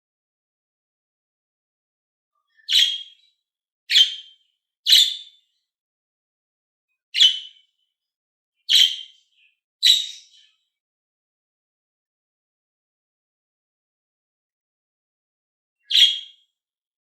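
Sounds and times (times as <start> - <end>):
budgerigar sharp calls: 3.9 - 4.2, 7.2 - 7.5, 15.9 - 16.3.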